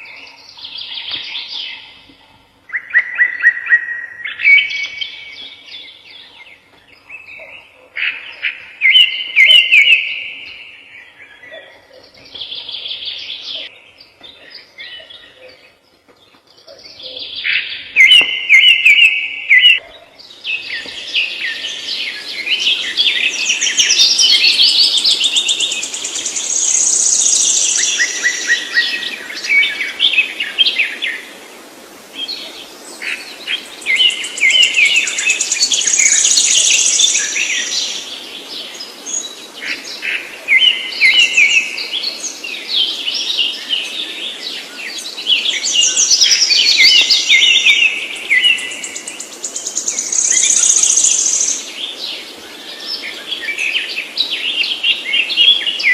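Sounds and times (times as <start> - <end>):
songbird singing chirps and trills: 0.0 - 55.9.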